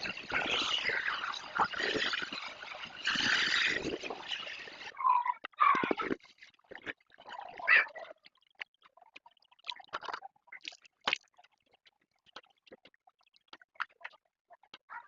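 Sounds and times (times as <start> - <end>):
water splashing and dripping: 0.0 - 5.0, 5.7 - 14.9
small clicks and taps: 8.2 - 14.9.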